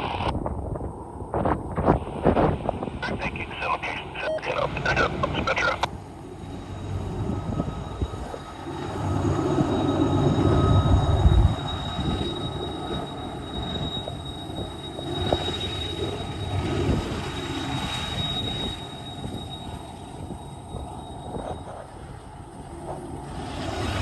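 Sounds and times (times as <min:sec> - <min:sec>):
wind buffeting microphone: 0:00.2 - 0:03.4, 0:05.9 - 0:24.0
freight train rumbling by: 0:02.0 - 0:24.0
thin steady high tone: 0:04.2 - 0:23.2.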